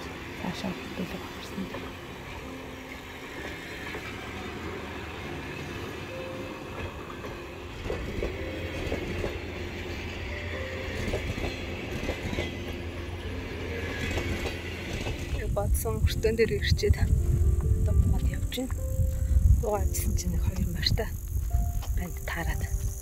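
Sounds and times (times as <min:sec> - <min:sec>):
train wheels clicking: 0:00.0 - 0:16.0
train rumbling on rails: 0:00.0 - 0:23.0.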